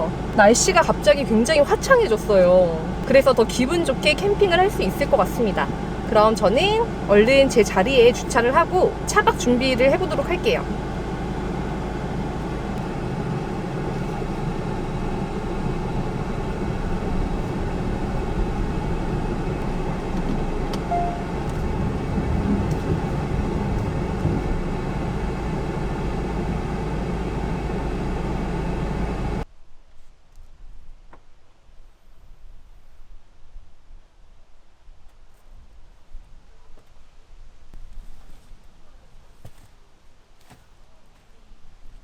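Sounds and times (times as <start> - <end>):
car engine and road rumble: 0.0 - 29.4.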